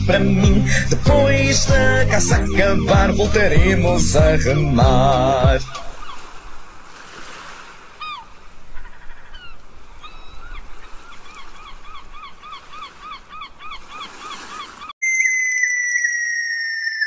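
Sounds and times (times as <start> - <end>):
bird calling: 5.6 - 6.4, 7.9 - 17.0
electronic tone sliding down: 15.0 - 17.0.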